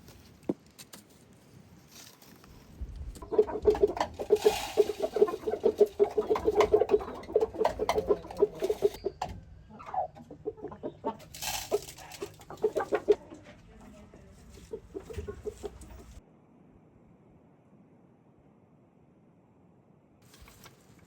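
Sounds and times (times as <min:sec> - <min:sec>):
chickens clucking: 0:03.2 - 0:16.2.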